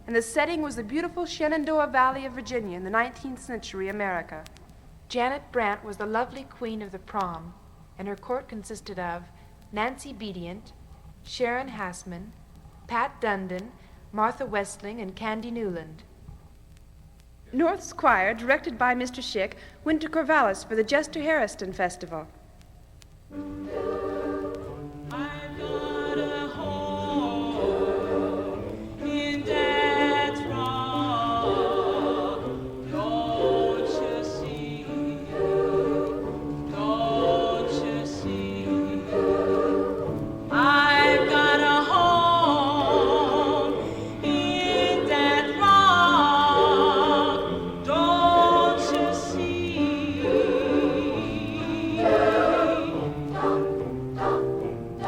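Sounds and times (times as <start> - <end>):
choir singing a cappella: 23.4 - 55.0.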